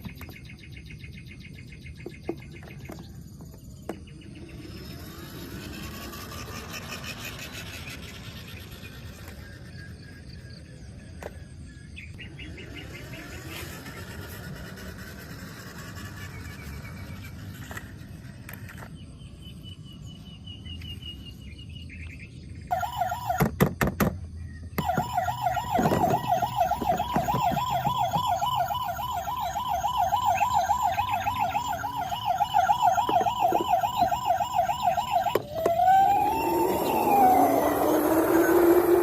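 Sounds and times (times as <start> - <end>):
electronic toy siren warbling: 4.4 - 10.4, 12.6 - 17.8, 22.7 - 23.6, 24.8 - 39.0.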